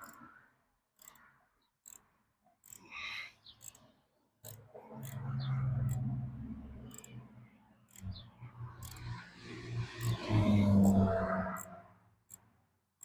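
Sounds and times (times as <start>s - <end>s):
metal clicks of hand tools: 0.0s - 0.3s, 1.0s - 6.1s, 6.9s - 7.2s, 7.9s - 8.2s, 8.8s - 9.2s, 9.9s - 12.5s.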